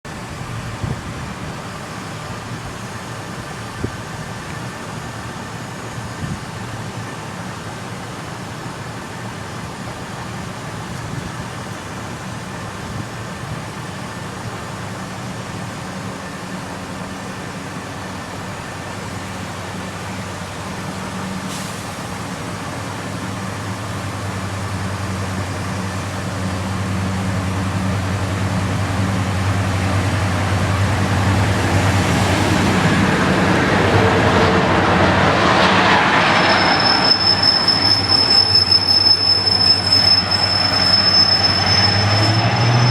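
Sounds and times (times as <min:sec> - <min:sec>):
diesel locomotive engine drone: 0:00.0 - 0:42.9
high wheel squeal: 0:31.1 - 0:42.9.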